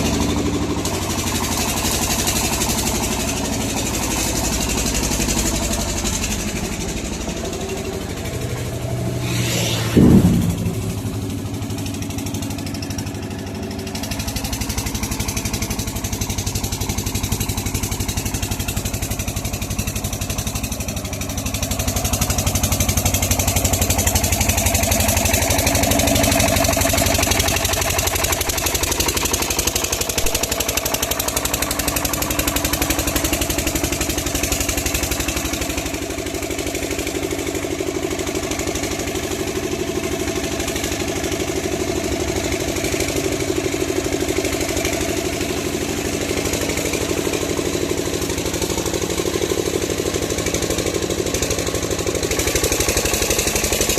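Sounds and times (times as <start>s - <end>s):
rising whine: 7.8s - 11.9s
loud sharp sound: 8.9s - 12.0s.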